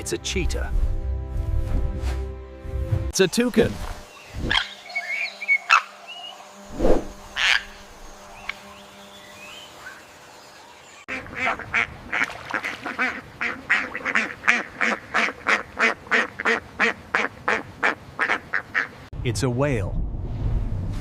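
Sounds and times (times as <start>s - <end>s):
toucan calling: 4.2s - 6.4s, 7.3s - 7.8s
bird fast repeated calls: 4.3s - 6.0s, 7.3s - 7.9s.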